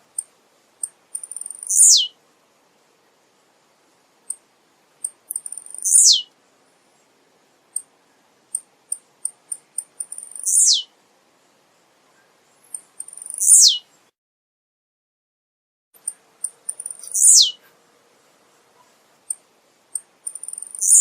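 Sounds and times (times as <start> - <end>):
bird buzzy song: 0.0 - 2.2, 3.3 - 14.2, 16.0 - 21.0
bird high ticks: 0.1 - 2.0, 5.0 - 6.1, 8.5 - 10.8, 12.6 - 13.6, 16.0 - 17.7, 18.8 - 21.0.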